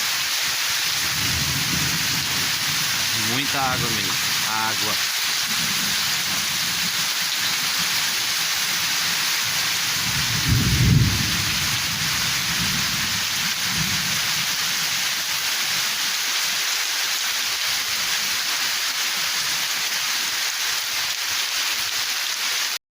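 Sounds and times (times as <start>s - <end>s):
heavy rain pouring: 0.0s - 22.8s
thunder rumbling: 1.0s - 14.2s.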